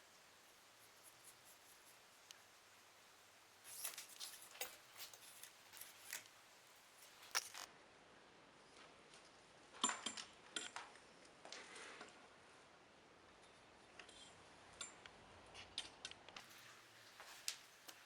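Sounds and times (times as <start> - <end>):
small hard parts clicking: 3.6 - 7.7.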